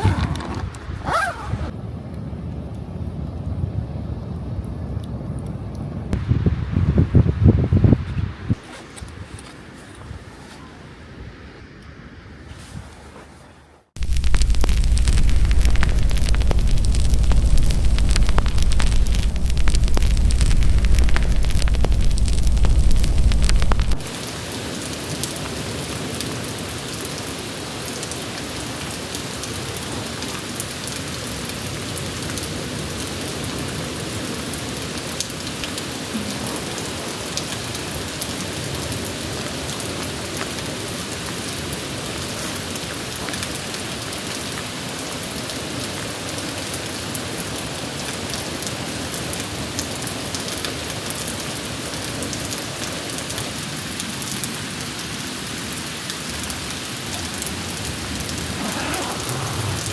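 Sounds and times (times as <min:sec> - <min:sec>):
steady rain falling: 0:00.0 - 0:08.6, 0:13.9 - 0:59.9
sharp raindrop impacts: 0:14.0 - 0:48.8.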